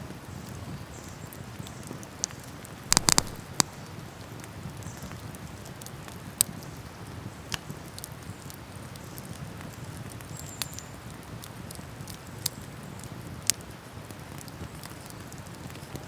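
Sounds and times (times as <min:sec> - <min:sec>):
campfire popping: 0:02.9 - 0:03.8.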